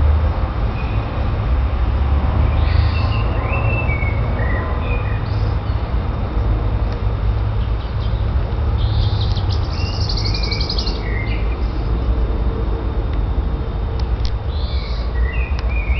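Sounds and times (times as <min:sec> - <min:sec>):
high bird chirps: 0:08.8 - 0:11.6.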